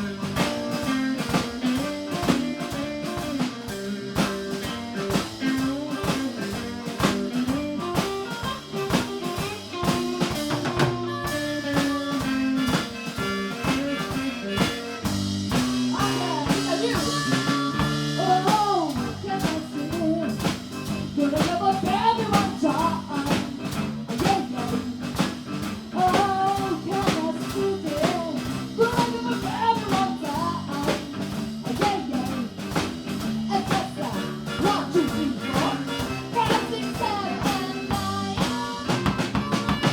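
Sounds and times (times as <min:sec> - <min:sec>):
lead guitar bending notes: 0:00.0 - 0:26.7, 0:32.3 - 0:39.9
blues band playing: 0:00.0 - 0:39.9
drum kit beat: 0:00.0 - 0:39.9.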